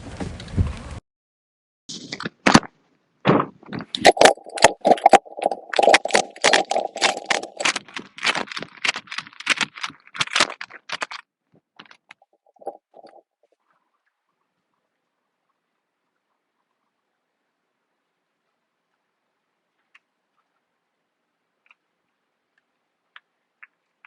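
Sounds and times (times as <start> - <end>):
gear clicking and rattling: 3.8 - 11.2.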